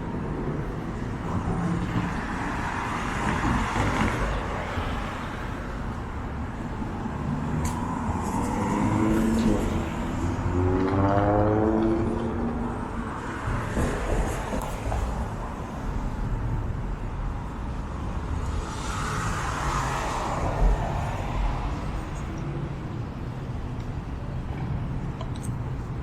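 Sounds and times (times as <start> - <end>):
traffic rumble: 0.0 - 26.0
vehicle passing by: 7.1 - 13.1.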